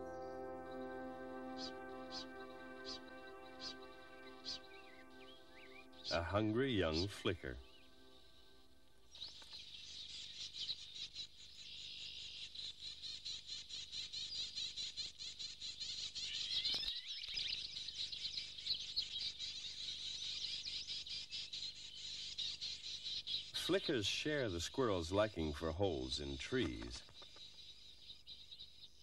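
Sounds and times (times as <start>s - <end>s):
nestlings begging chirps: 0.6s - 7.9s.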